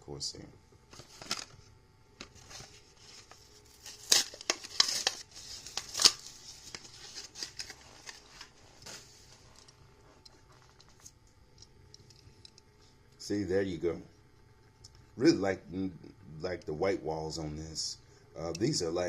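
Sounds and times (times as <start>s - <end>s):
plastic and card crinkling: 0.9s - 11.2s
packaging being cut: 3.8s - 8.4s.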